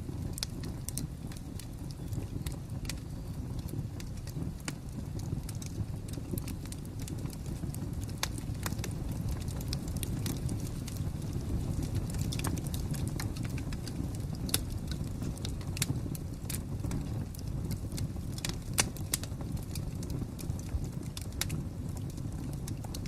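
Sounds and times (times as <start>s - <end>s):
fire crackling and popping: 0.0s - 23.0s.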